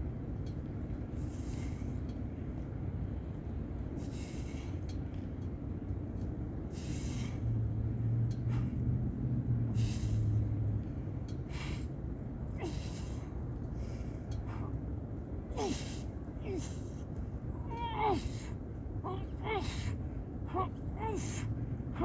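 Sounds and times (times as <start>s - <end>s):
steady low rumble: 0.0s - 22.0s
man breathing hard: 9.7s - 10.4s, 11.4s - 14.9s, 15.5s - 17.1s, 17.7s - 22.0s.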